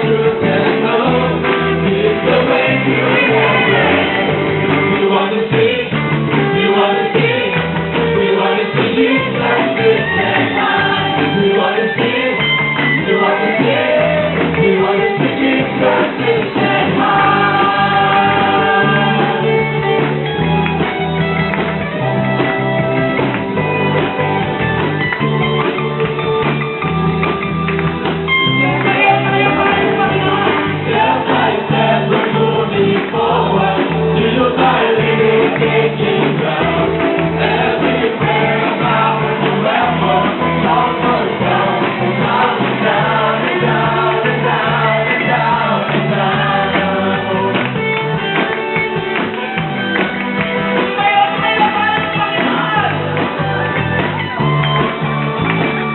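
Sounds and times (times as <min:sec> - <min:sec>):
voices singing worship song: 0:00.0 - 0:20.2, 0:28.5 - 0:48.2, 0:50.8 - 0:54.1
instrumental backing: 0:00.0 - 0:55.9.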